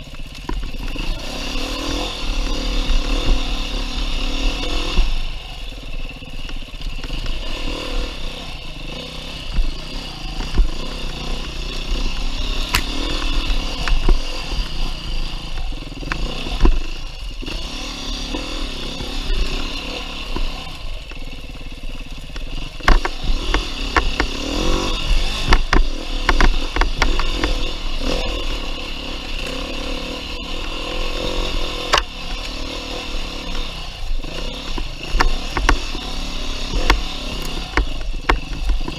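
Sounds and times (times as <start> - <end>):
motorcycle engine revving: 0.0 - 38.9
sharp knocks and rattles: 22.2 - 29.7, 30.8 - 38.9.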